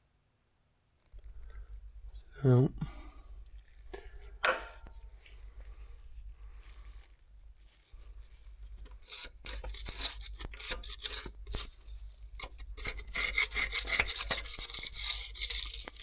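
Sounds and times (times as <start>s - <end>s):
hand scraper scraping grime: 8.8s - 11.8s, 12.4s - 16.0s.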